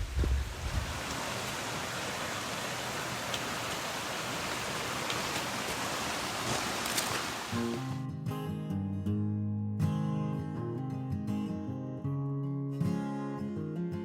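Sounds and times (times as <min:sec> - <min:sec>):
water rushing at a creek: 0:00.0 - 0:08.0.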